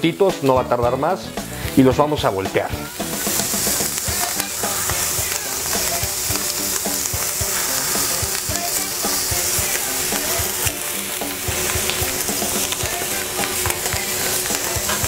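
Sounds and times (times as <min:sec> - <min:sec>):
food sizzling on a griddle: 0:00.0 - 0:15.0.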